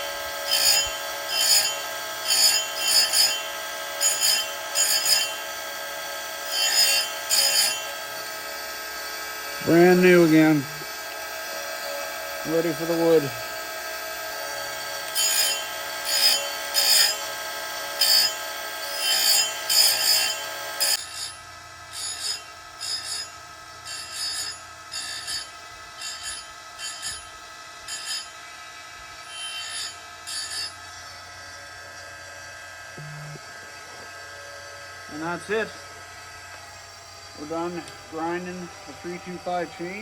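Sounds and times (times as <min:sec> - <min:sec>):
grinding wheel scraping chain: 0:00.0 - 0:08.4, 0:09.4 - 0:13.6, 0:14.2 - 0:28.5, 0:29.3 - 0:31.2
grinder motor humming: 0:00.0 - 0:40.0.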